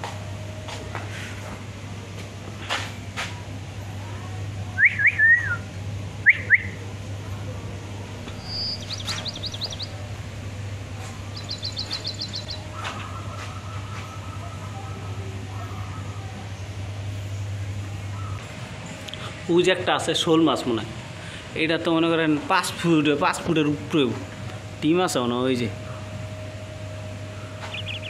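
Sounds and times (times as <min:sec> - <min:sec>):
constant low hum: 0:00.0 - 0:28.0
birds calling: 0:08.0 - 0:20.4, 0:25.7 - 0:28.0
bird trills: 0:08.3 - 0:14.6, 0:27.3 - 0:28.0.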